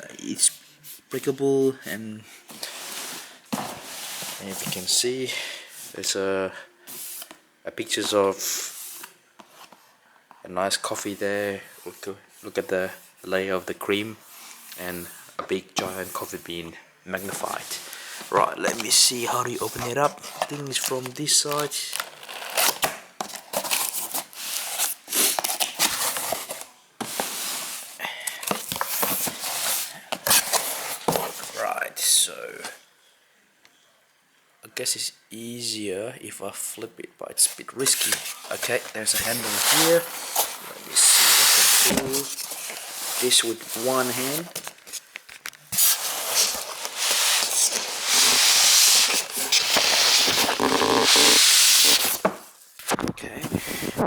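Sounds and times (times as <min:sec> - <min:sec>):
cardboard tearing and crinkling: 0:19.7 - 0:27.3, 0:37.9 - 0:53.0.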